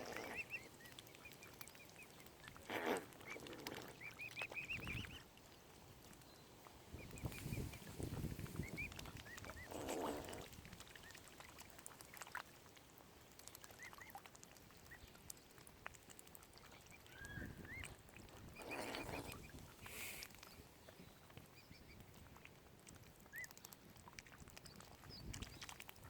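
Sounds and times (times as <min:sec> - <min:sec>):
cygnets peeping: 0:00.0 - 0:05.3, 0:06.9 - 0:10.4, 0:16.6 - 0:22.3, 0:23.2 - 0:25.8.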